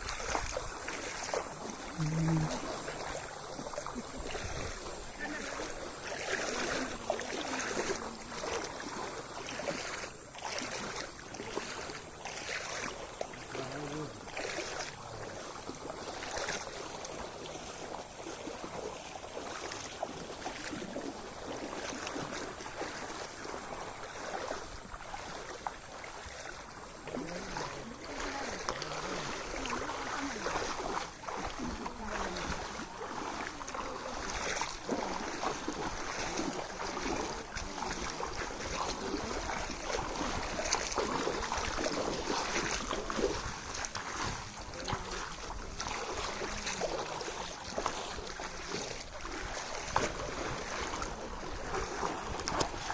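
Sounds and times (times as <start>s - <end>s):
waves and splashing water: 0.0s - 52.9s.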